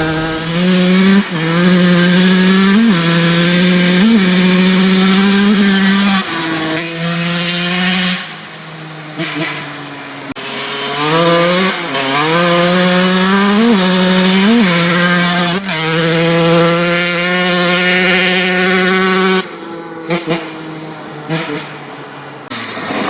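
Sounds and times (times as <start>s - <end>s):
dirt bike engine revving: 0.0s - 0.8s.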